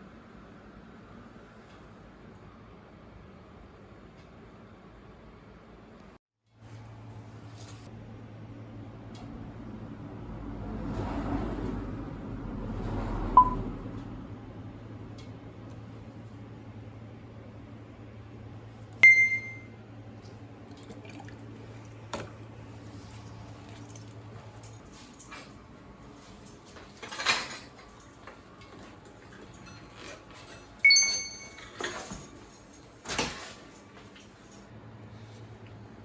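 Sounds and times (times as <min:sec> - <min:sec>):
low steady hum: 0:14.4 - 0:36.0
handling and rustling: 0:21.6 - 0:34.7
metal objects clinking: 0:23.2 - 0:34.7.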